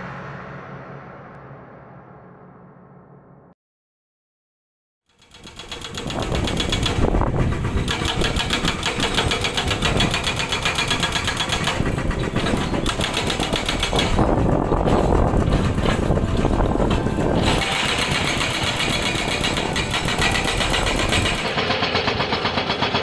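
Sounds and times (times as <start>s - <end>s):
hydraulic rock breaker hammering: 5.2s - 23.0s
diesel engine running: 6.2s - 23.0s.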